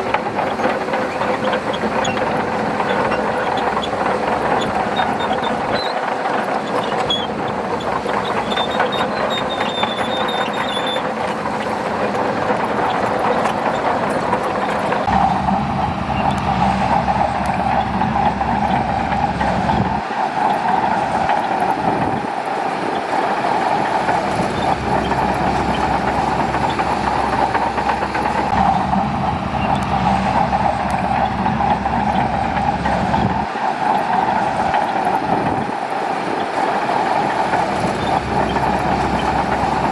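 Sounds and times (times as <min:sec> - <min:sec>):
bulldozer diesel engine: 0:00.0 - 0:39.9
heavy low engine rumble: 0:00.0 - 0:39.9
steel tracks clattering: 0:00.0 - 0:39.9.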